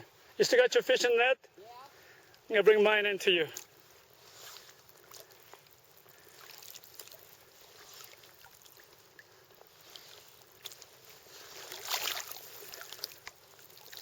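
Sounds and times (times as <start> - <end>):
river water lapping: 3.6 - 14.0
small ticks: 12.8 - 13.6.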